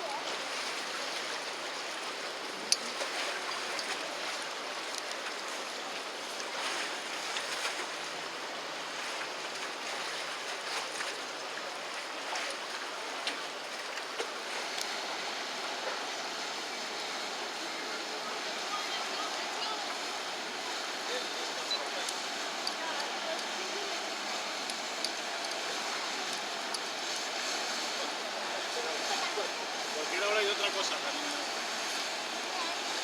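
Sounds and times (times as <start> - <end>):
small splashes: 0.0 - 15.0
river water lapping against bank: 0.0 - 33.0.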